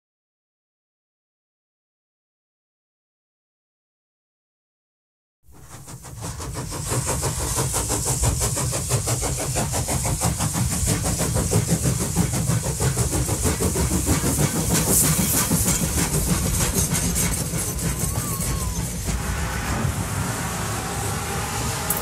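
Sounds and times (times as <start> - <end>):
train running: 5.5 - 22.0.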